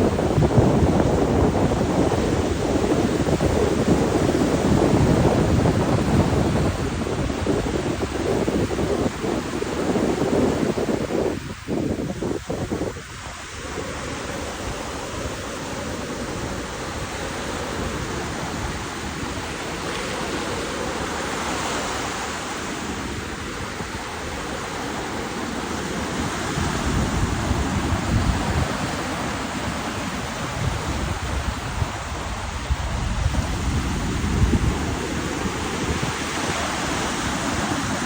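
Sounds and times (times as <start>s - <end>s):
ocean surf rushing: 0.0s - 38.0s
wind on microphone: 0.0s - 38.0s.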